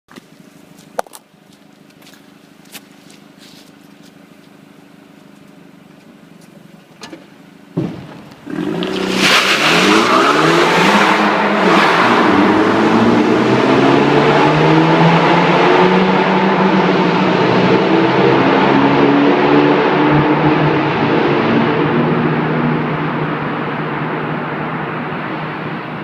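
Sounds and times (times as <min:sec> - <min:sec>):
thump: 0:07.8 - 0:08.4
car engine accelerating: 0:08.0 - 0:26.0.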